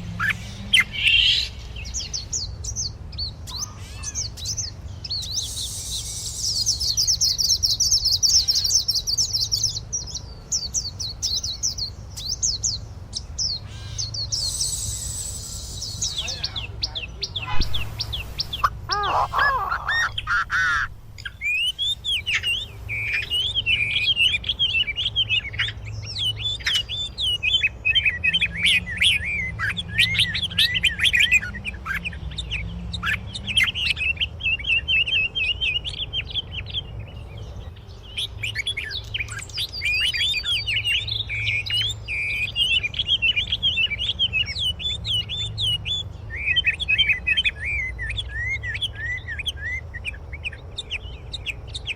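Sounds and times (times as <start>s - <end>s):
songbirds chirping and twittering: 0.0s - 51.9s
low rumble: 17.4s - 21.4s.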